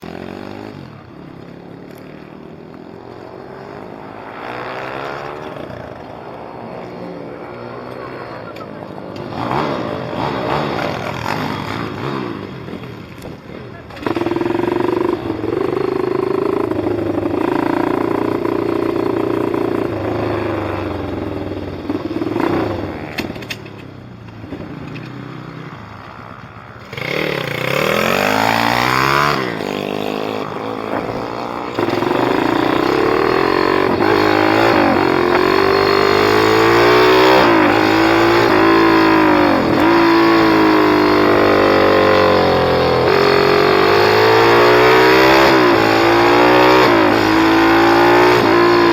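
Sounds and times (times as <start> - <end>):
motorbike engine revving: 9.2 - 12.9, 13.8 - 48.9.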